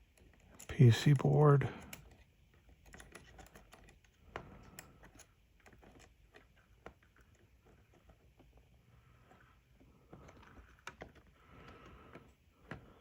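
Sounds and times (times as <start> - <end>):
small parts clicking: 0.0 - 8.6.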